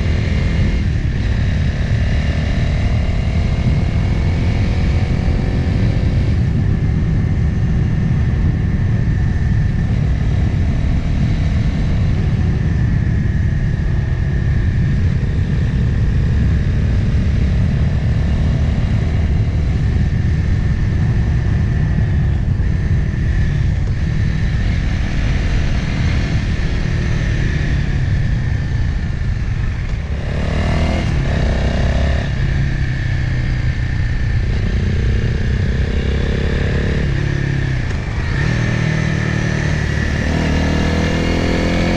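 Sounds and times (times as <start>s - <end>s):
motorcycle engine running: 0.0s - 41.9s
wind and road noise: 0.0s - 41.9s.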